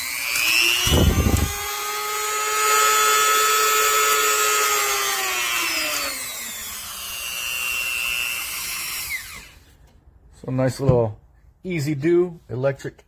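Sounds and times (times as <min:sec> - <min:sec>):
electric motor whining: 0:00.0 - 0:09.6.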